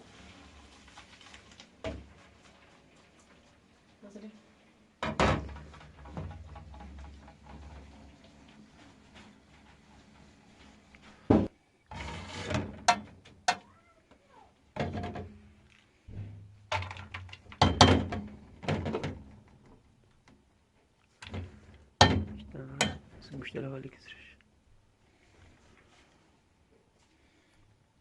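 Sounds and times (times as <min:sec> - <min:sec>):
scraping or rustling: 0:00.0 - 0:04.5, 0:05.4 - 0:13.2.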